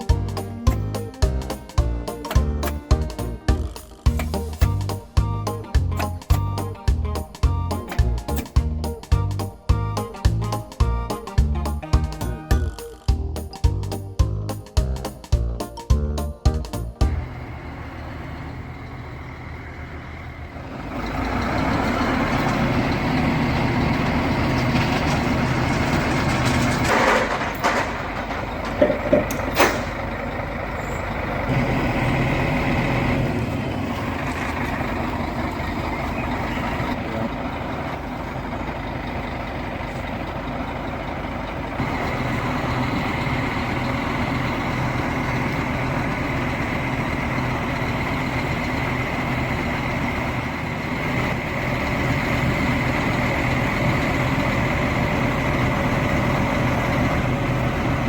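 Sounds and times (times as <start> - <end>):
large engine running: 0.0 - 58.0
sharp knocks and clanks: 24.5 - 30.1.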